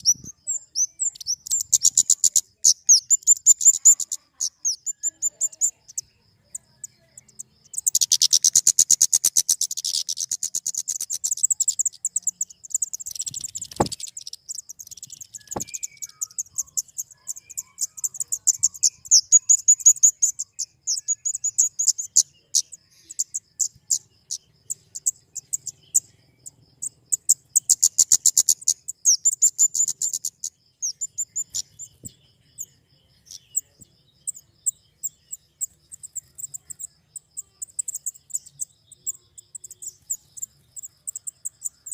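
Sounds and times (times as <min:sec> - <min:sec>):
bird ticking chip notes: 0:00.0 - 0:32.7.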